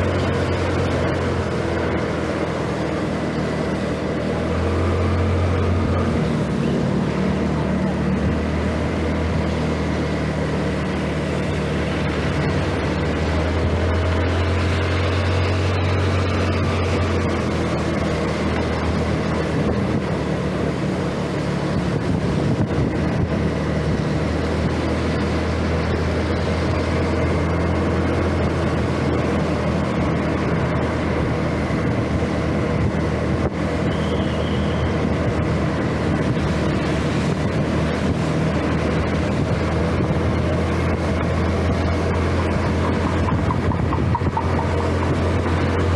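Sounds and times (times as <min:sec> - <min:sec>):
road noise: 0:00.0 - 0:45.9
scooter engine humming: 0:00.0 - 0:45.9
wind noise: 0:11.4 - 0:20.8, 0:21.4 - 0:45.9.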